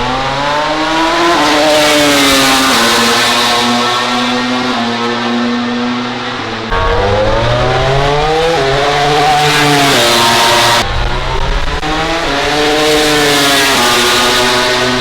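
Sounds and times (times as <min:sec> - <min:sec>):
motorcycle engine accelerating: 0:06.7 - 0:10.8.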